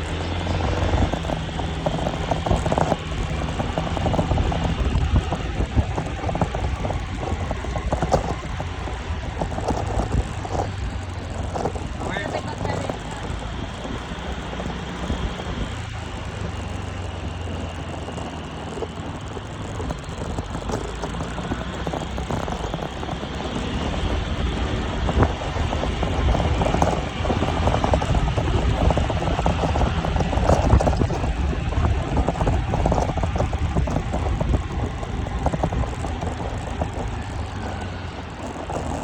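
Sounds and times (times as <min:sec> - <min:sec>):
vehicle engine rumble: 0:00.0 - 0:39.0
wind noise: 0:00.0 - 0:39.0.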